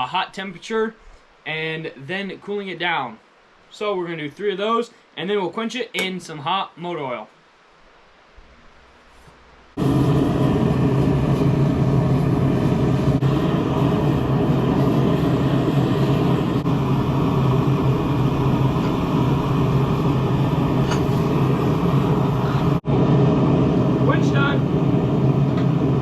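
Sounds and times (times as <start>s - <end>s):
low hum: 8.2s - 26.0s
forge rushing noise: 9.8s - 26.0s.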